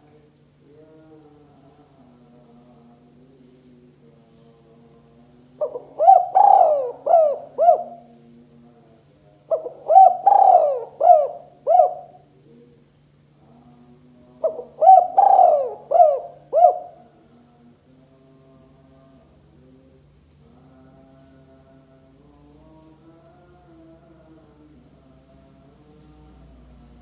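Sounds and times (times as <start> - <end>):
dove cooing: 5.6 - 8.1, 9.5 - 12.3, 14.4 - 17.1.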